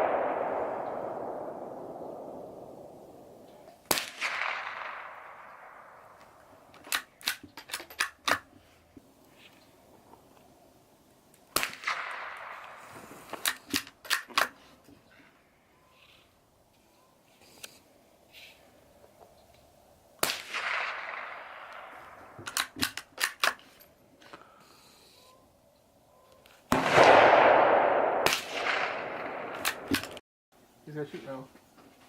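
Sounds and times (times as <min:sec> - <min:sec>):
rifle shots echoing: 0:00.0 - 0:06.7, 0:11.5 - 0:12.9, 0:20.2 - 0:22.8, 0:26.7 - 0:30.2.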